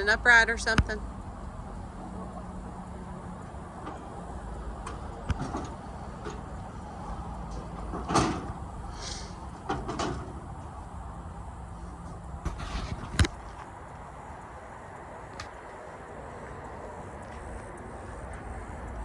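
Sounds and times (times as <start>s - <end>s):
steady low hum: 0.0s - 9.7s, 10.3s - 19.0s
knocks and clunks of parts: 4.8s - 6.5s, 7.5s - 8.6s.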